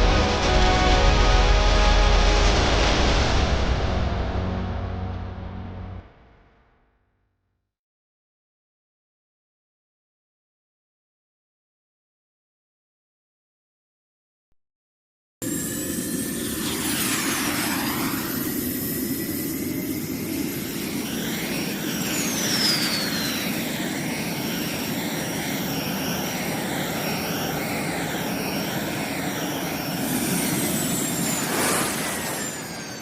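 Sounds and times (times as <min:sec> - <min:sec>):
model airplane motor whining: 0:15.5 - 0:33.0.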